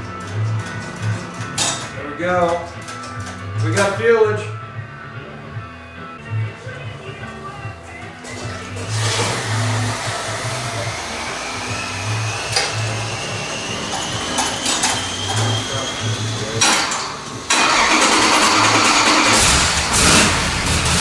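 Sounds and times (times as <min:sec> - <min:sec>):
engine running loud: 0:08.6 - 0:21.0
rising whine: 0:08.7 - 0:17.5.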